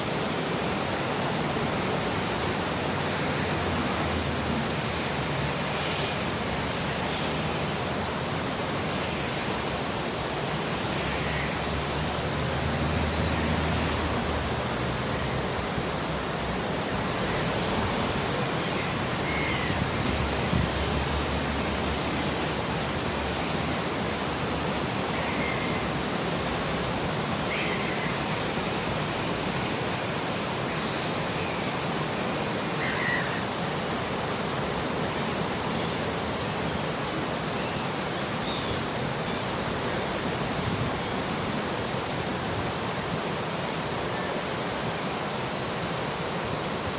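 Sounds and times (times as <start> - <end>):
river water rushing: 0.0 - 46.9
faint bird calls: 32.8 - 33.5.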